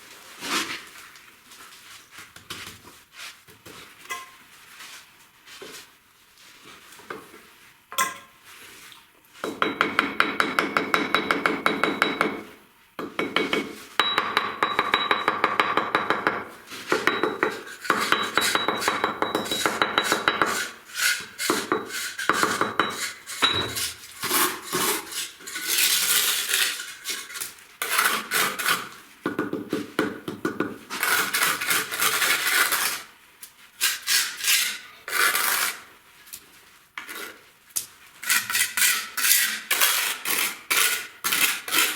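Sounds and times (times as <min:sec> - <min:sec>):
metal tool scraping brick: 0:17.0 - 0:28.9, 0:33.8 - 0:35.8, 0:38.2 - 0:41.9.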